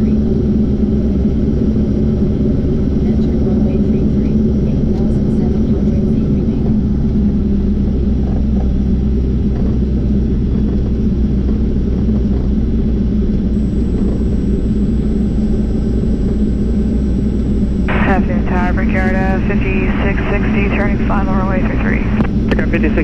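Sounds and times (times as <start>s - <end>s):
aircraft engine idling: 13.6s - 23.0s.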